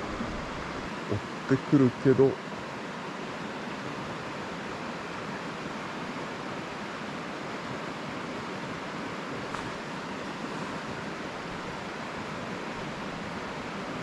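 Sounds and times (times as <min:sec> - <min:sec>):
stream water flowing: 0:00.0 - 0:14.0.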